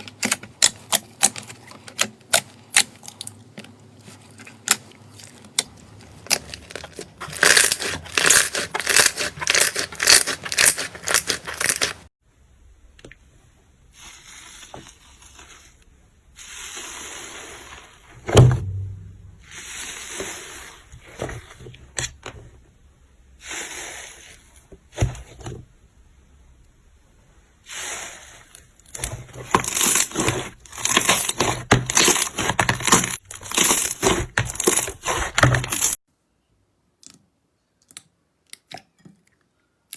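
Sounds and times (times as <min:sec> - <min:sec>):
slime crackling and squishing: 0:00.0 - 0:12.1, 0:28.9 - 0:36.0.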